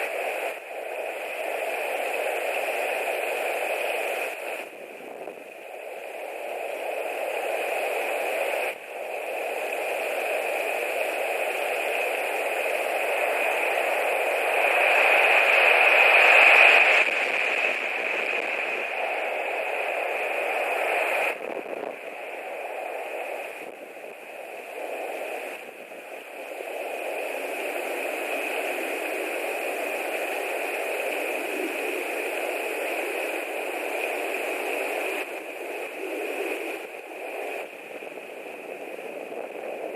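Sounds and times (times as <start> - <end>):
wind blowing over microphone: 0.0 - 39.9.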